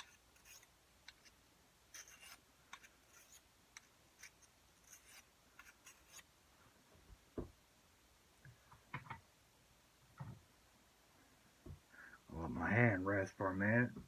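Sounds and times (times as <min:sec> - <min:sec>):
blade being sharpened: 0:00.0 - 0:01.3, 0:01.9 - 0:03.4, 0:04.2 - 0:06.2.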